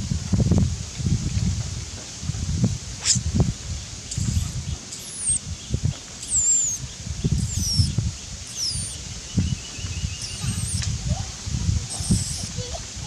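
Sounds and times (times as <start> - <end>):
leaves and branches rustling: 0.0 - 13.0
bird calls sliding downward: 4.1 - 5.4, 6.2 - 11.0, 11.9 - 12.7.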